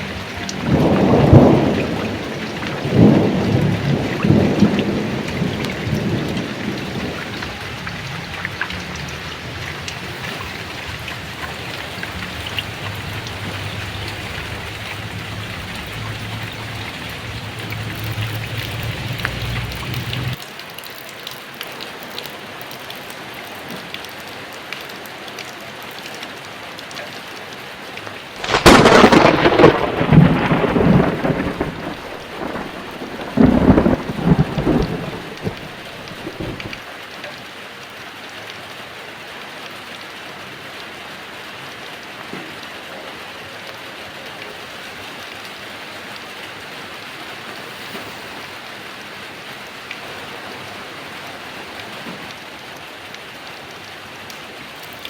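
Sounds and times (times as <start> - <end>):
thunderclap and rumbling: 0.0 - 20.4, 28.4 - 36.8
heavy rain pouring: 0.0 - 55.0.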